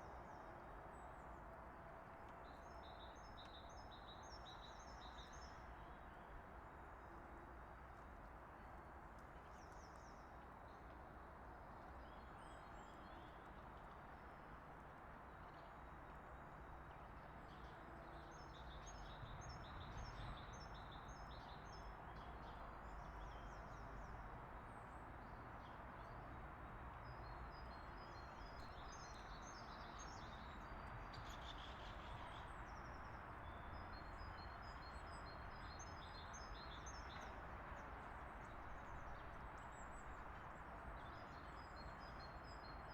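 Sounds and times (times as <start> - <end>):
outdoor background noise: 0.0 - 42.9
songbirds chirping: 2.2 - 6.3, 15.2 - 42.9.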